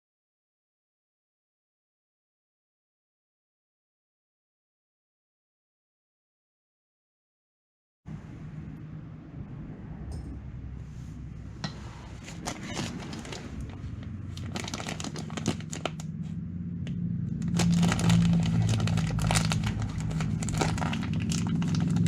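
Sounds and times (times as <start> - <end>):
scooter engine humming: 11.4 - 22.0.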